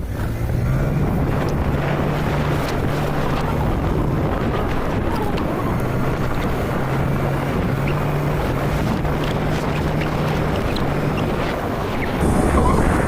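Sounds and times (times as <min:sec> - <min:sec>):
motorcycle engine running: 0:00.0 - 0:13.0
wind noise on microphone: 0:00.0 - 0:13.0.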